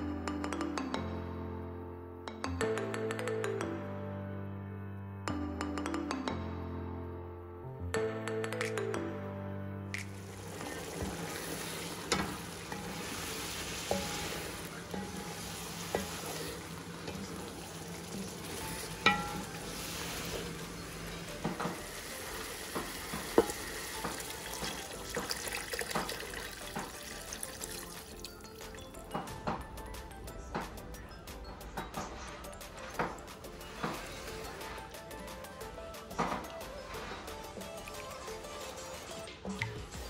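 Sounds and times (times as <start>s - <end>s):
food sizzling in a pot: 10.0s - 29.1s
spatula knocking against pot: 15.0s - 19.7s.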